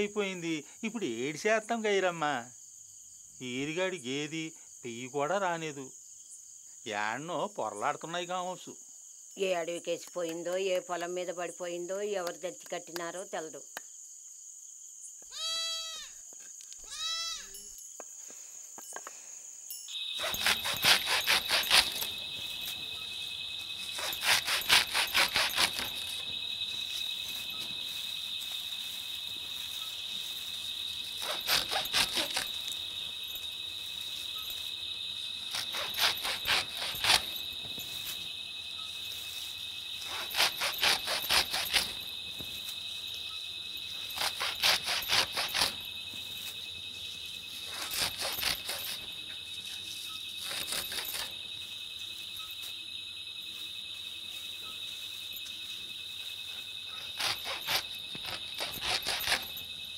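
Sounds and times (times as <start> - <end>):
crickets trilling: 0.0 - 59.9
higher thin insect trill: 0.0 - 59.9
rapid chirping pulses: 19.9 - 52.6, 56.5 - 59.9.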